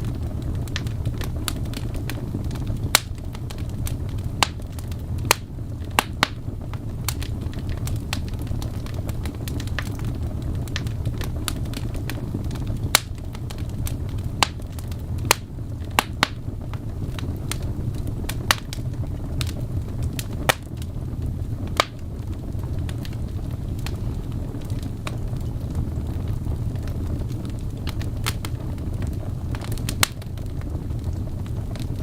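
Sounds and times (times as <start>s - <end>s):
fire burning in fireplace: 0.0s - 32.0s
fire crackling and popping: 0.0s - 32.0s
loud wood snaps: 0.7s - 10.1s, 10.7s - 20.9s, 21.8s - 22.0s, 29.5s - 30.3s.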